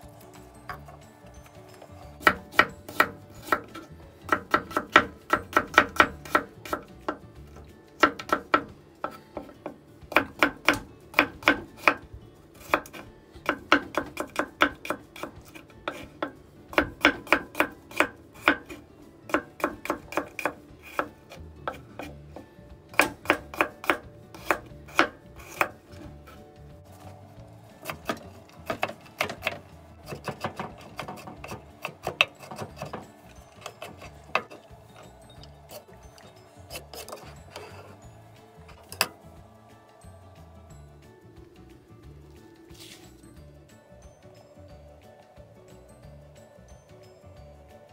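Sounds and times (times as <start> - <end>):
knife tapping on wooden board: 2.2 - 7.3, 8.0 - 12.0, 12.7 - 21.1, 21.7 - 25.8, 27.8 - 34.6.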